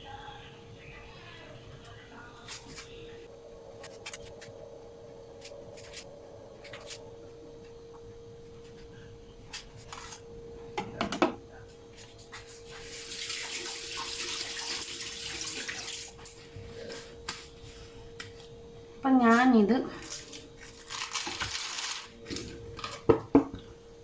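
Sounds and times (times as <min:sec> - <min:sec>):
kitchen tap running: 0:12.8 - 0:16.2.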